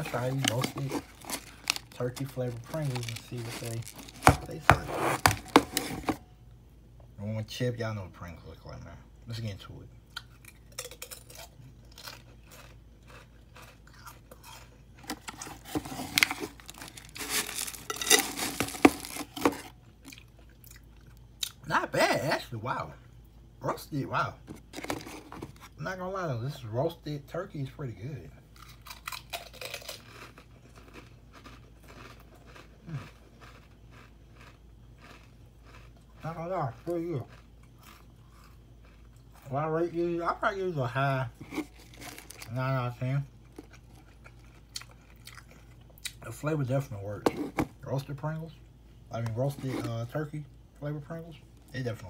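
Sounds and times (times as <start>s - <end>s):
crunching potato chip: 0.0s - 6.2s, 10.2s - 21.6s, 28.6s - 39.6s, 41.5s - 46.2s.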